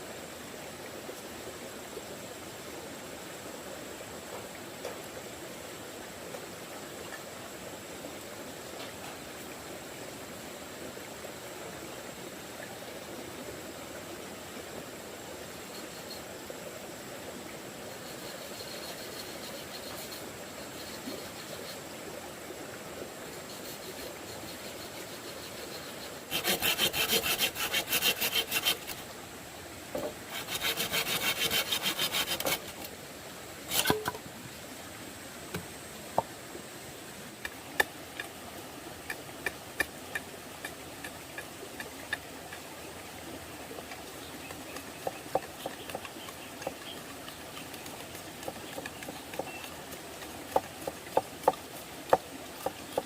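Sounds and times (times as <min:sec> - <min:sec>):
hand saw cutting wood: 0:26.3 - 0:29.0, 0:30.3 - 0:32.9, 0:33.7 - 0:34.1.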